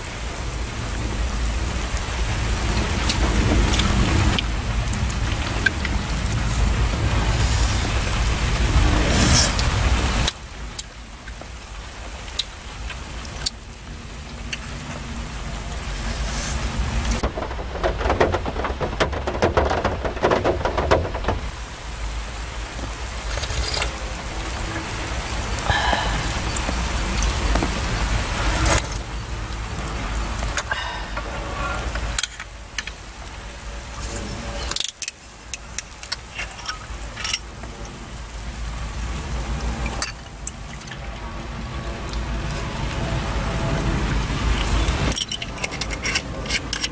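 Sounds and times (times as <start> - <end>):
heavy rain on a car: 0.0 - 46.9
raindrops striking car body: 0.0 - 46.9
deep low rumble: 13.7 - 32.2.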